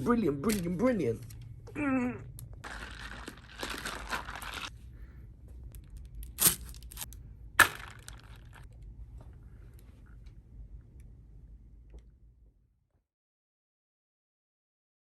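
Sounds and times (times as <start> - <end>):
plastic packaging crinkling: 2.6 - 4.7, 5.8 - 8.7.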